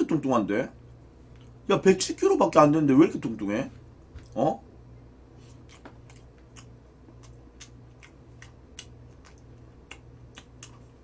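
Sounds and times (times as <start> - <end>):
chewing crispy chicken: 5.4 - 11.0.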